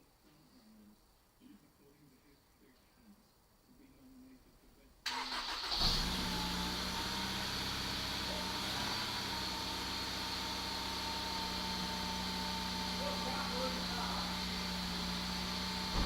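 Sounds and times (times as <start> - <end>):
engine revving and idling: 5.4 - 16.0.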